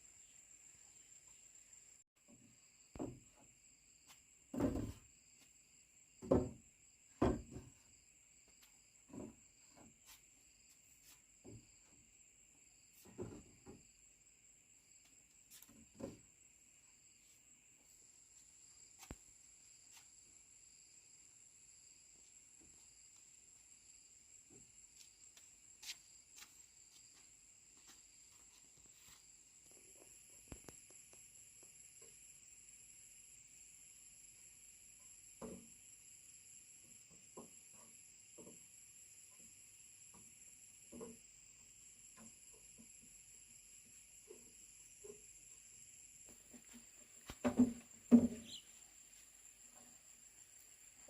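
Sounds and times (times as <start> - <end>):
insects chirring: 0.0 - 51.0
knocks and scrapes: 4.1 - 5.1, 6.2 - 7.9, 8.6 - 12.1, 12.9 - 14.0, 15.5 - 16.4, 46.3 - 48.7.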